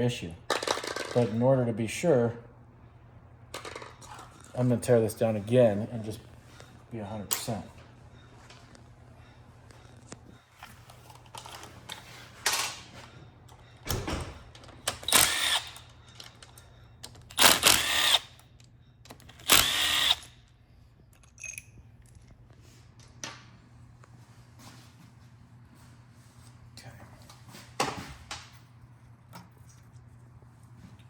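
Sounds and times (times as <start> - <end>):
power drill-driver bursts: 15.0 - 15.8, 17.3 - 18.4, 19.3 - 20.4.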